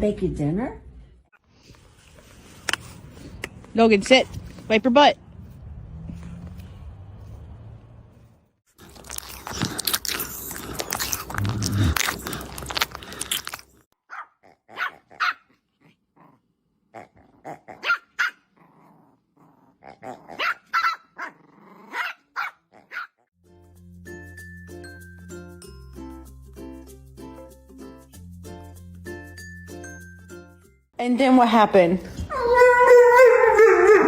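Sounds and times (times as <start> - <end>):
dog barking and growling: 8.8 - 23.3, 32.1 - 34.0.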